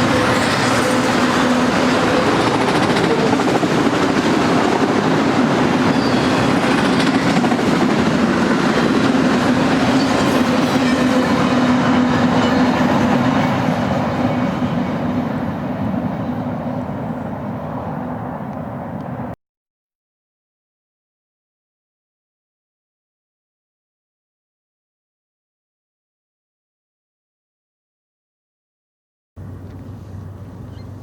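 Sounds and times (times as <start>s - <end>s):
freight train cars rolling past: 0.0s - 19.4s.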